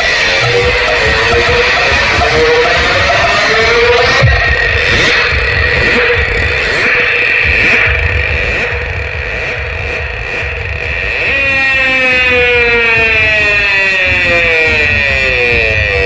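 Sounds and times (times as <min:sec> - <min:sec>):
deep pulsing bass: 0:00.0 - 0:16.0
high synth tone: 0:00.0 - 0:16.0.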